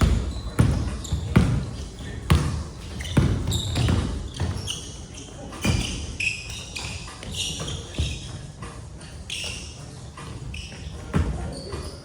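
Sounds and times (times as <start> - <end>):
basketball thudding on court: 0.0 - 4.6.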